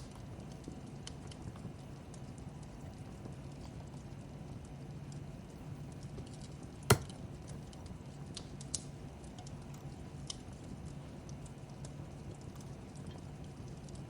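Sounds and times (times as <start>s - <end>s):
fireplace crackling: 0.0s - 14.0s
loud sharp pop: 6.9s - 7.2s.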